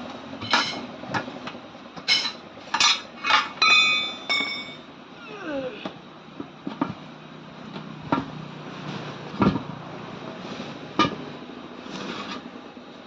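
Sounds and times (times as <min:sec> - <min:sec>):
metal tools knocking on wheel rim: 0:02.0 - 0:04.8.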